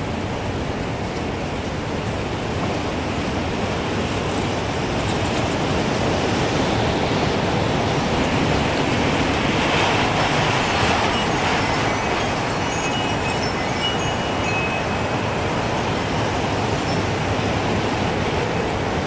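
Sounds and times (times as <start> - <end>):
gusting wind: 0.0 - 19.0
wind chimes tinkling: 9.6 - 18.3.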